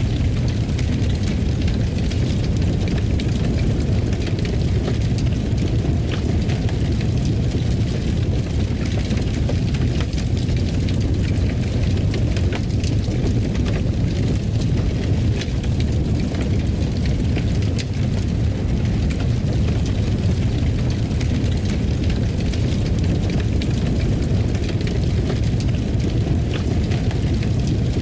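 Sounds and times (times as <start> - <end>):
fire crackling in a fireplace: 0.0 - 28.0.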